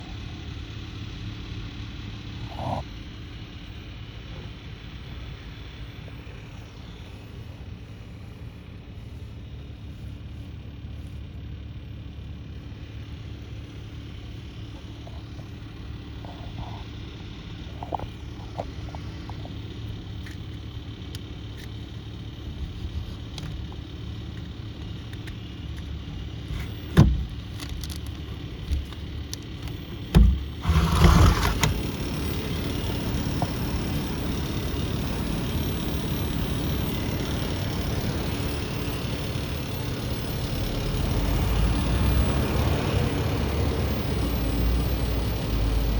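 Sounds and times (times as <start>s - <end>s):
rough noisy burst: 13.5s - 45.9s.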